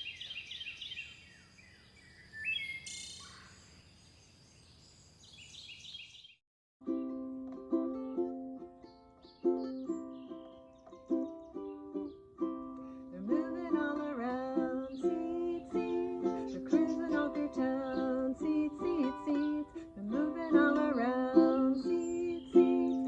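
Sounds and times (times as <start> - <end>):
ukulele playing: 6.8 - 23.0
person singing: 12.5 - 23.0.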